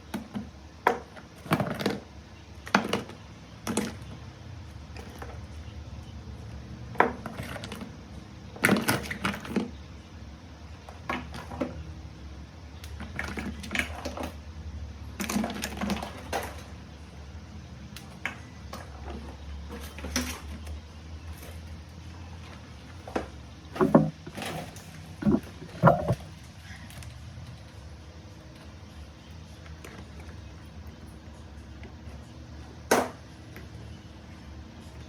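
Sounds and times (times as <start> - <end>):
steady low hum: 20.8 - 35.0
hard objects clattering on workbench: 23.8 - 26.3.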